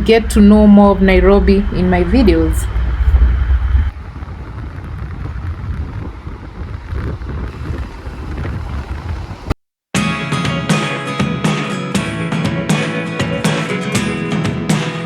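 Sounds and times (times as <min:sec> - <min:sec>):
motorbike road noise: 0:00.0 - 0:09.6
wind buffeting microphone: 0:00.0 - 0:09.6
acoustic guitar music: 0:10.0 - 0:15.0.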